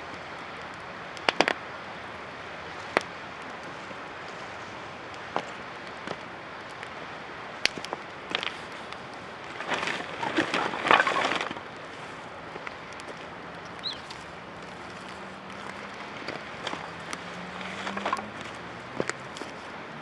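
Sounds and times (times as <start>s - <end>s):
campfire crackling: 0.0s - 20.0s
fire popping: 0.0s - 20.0s.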